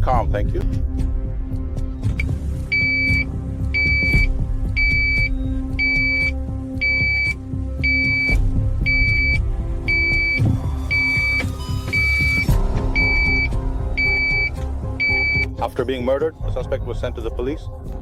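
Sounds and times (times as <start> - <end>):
electronic beeper beeps: 2.7 - 15.5.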